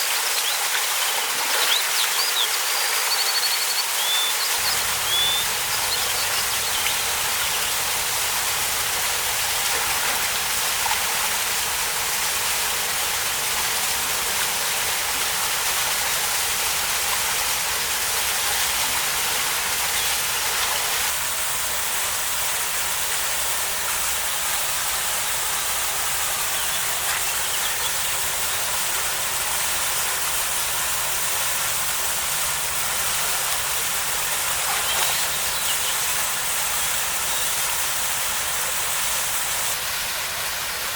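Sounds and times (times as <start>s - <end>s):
waterfall pouring into a pool: 0.0s - 40.9s.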